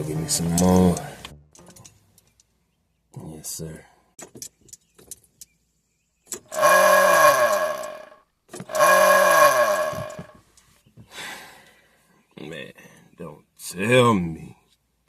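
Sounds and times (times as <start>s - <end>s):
truck starter motor cranking: 6.5s - 10.3s.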